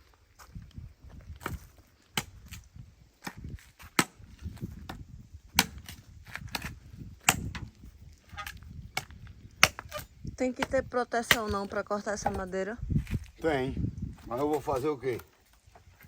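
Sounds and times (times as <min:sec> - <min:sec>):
blade chopping wood: 0:01.4 - 0:02.6, 0:03.2 - 0:07.8, 0:08.9 - 0:12.4.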